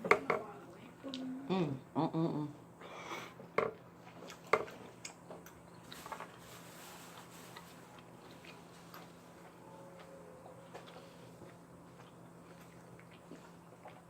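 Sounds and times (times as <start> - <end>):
person chewing food: 3.4 - 14.0.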